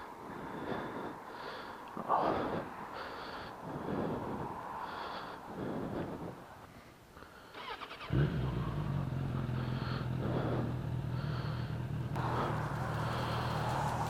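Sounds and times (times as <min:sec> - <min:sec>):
motorcycle engine running: 0:08.0 - 0:14.0.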